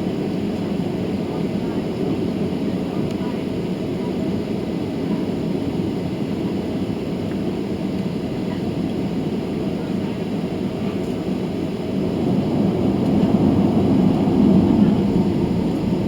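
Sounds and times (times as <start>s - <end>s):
airplane cabin rumble: 9.8s - 16.0s.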